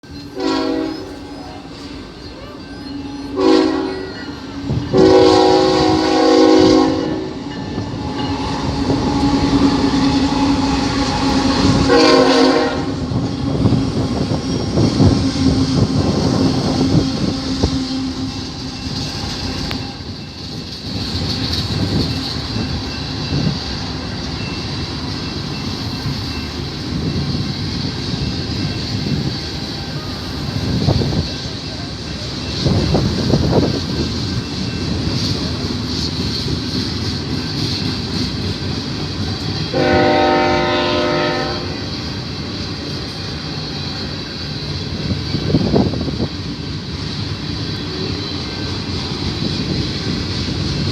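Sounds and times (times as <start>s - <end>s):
train rumble: 0.0s - 50.9s
train air horn blasts: 0.3s - 1.7s, 2.9s - 20.2s, 39.6s - 42.1s.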